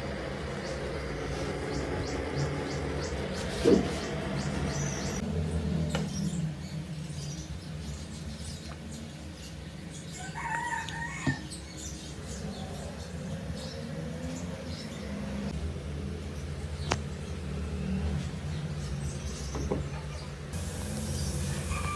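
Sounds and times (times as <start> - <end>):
faint bird chirps: 20.1 - 21.9
steady low hum: 20.5 - 21.9
bird call: 20.6 - 21.9.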